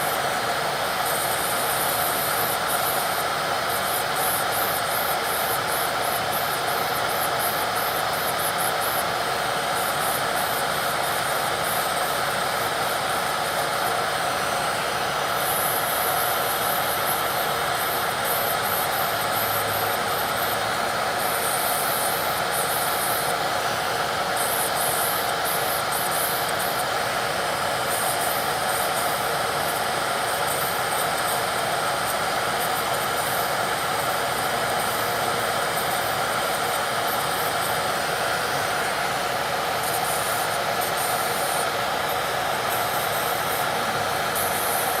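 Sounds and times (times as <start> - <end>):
electric nail drill grinding: 0.0 - 45.0.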